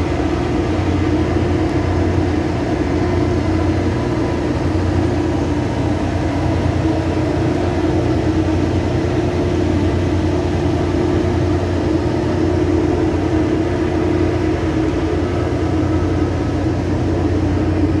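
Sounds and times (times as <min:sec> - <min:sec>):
drilling rig machinery drone: 0:00.0 - 0:18.0.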